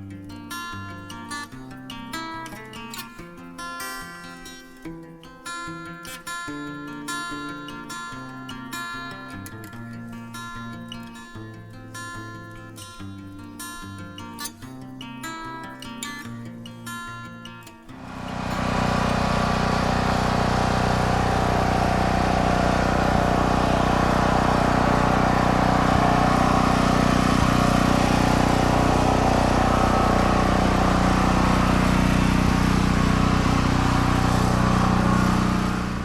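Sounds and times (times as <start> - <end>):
engine running: 17.9 - 36.0.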